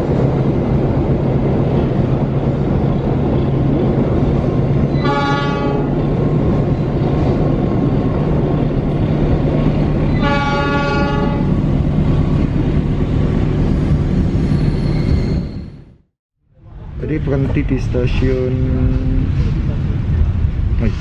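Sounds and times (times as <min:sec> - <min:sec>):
train rumble and wheel noise: 0:00.0 - 0:21.0
locomotive horn blasts: 0:05.0 - 0:06.0, 0:10.2 - 0:11.6.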